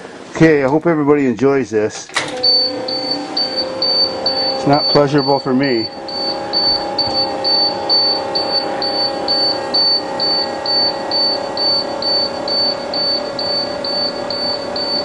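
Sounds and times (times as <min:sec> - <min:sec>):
two-tone electrical hum: 0:00.0 - 0:15.0
high-pitched warning buzzer beeping: 0:02.2 - 0:15.0.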